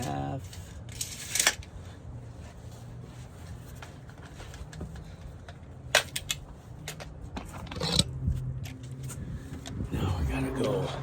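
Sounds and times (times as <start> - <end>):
tools clicking and knocking: 4.2 - 9.8.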